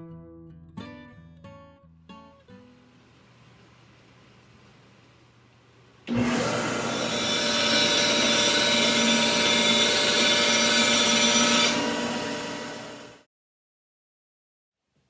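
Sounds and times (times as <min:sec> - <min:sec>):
power tool motor running: 0:06.1 - 0:13.2.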